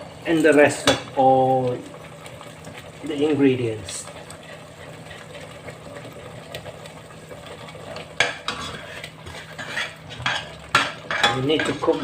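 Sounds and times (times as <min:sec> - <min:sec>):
spices hissing in a pot: 0:00.0 - 0:12.0
spoon scraping a pot: 0:08.2 - 0:12.0.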